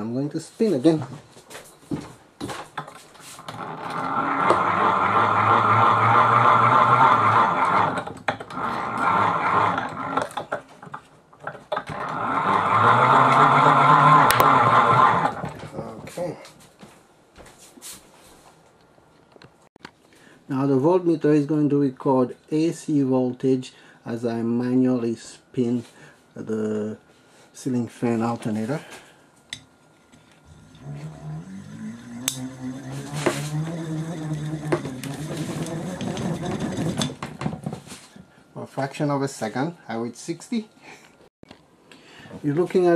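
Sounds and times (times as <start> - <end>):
electric motor gears whirring: 3.4 - 10.4, 11.8 - 15.5, 30.4 - 37.2
alternator hum rising in pitch: 30.4 - 37.0.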